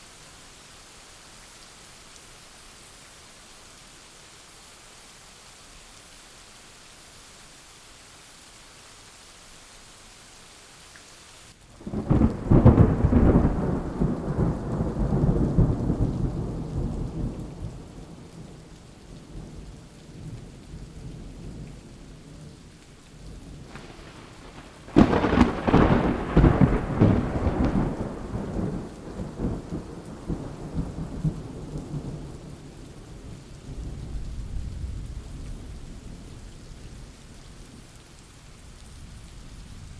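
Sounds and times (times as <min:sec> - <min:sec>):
steady rain hiss: 0:00.0 - 0:39.9
thunderclaps rumbling: 0:11.8 - 0:18.6, 0:23.4 - 0:36.4.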